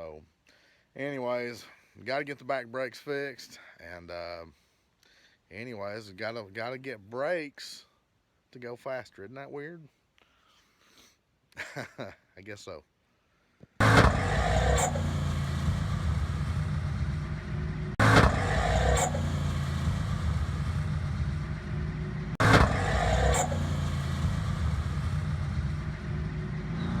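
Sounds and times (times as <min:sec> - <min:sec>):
car engine running hard: 0:13.8 - 0:27.0
weird transmission noise: 0:13.8 - 0:27.0.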